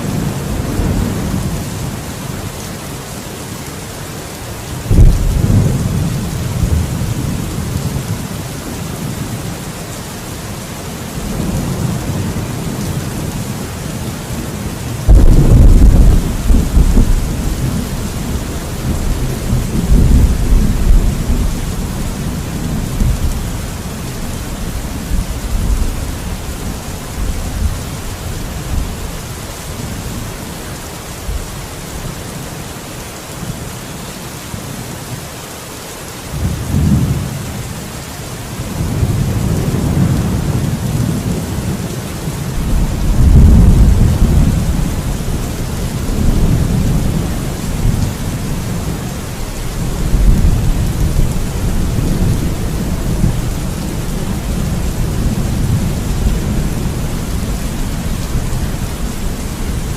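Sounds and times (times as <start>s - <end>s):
heavy rain: 0.0s - 59.9s
rolling thunder: 4.9s - 8.2s, 15.0s - 27.8s, 42.6s - 59.9s.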